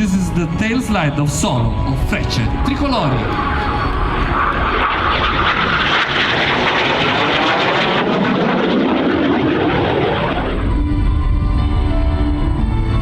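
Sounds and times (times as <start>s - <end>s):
music: 0.0s - 5.2s, 10.4s - 13.0s
jet flying past: 0.0s - 13.0s.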